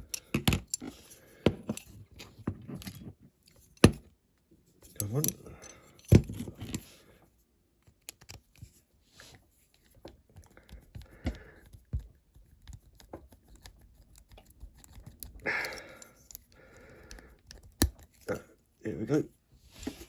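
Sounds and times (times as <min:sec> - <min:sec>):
hand tool scraping metal model: 0:04.8 - 0:06.9.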